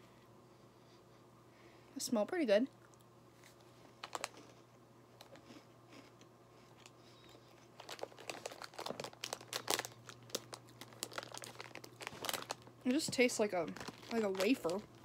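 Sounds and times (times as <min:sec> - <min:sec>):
crunchy wafer being chewed: 0:02.8 - 0:12.8, 0:13.8 - 0:15.0
wrapper crinkles: 0:04.0 - 0:04.5, 0:06.8 - 0:15.0.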